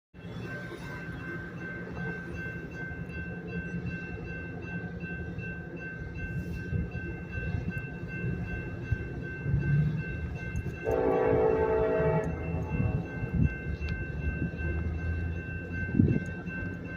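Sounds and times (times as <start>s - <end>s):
diesel locomotives rumbling: 0.2s - 16.9s
locomotive air horn blast: 10.8s - 13.0s.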